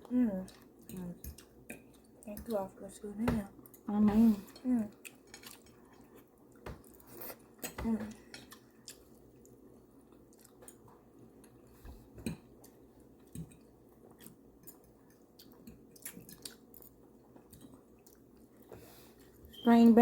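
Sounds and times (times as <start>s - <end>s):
faint chewing: 0.1s - 19.6s.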